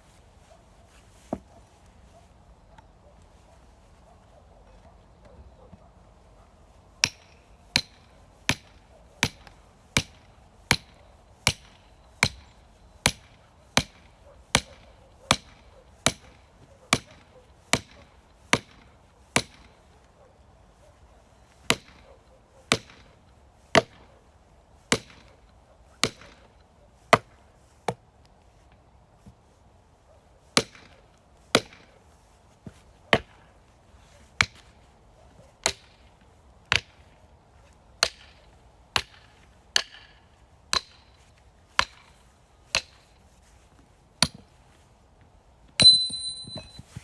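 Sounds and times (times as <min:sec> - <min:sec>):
firewood chopping strikes: 0:07.0 - 0:12.5, 0:13.1 - 0:14.7, 0:15.3 - 0:19.7, 0:34.4 - 0:34.7, 0:35.6 - 0:36.0, 0:39.0 - 0:41.2, 0:41.8 - 0:42.1, 0:42.7 - 0:43.0, 0:44.2 - 0:44.5.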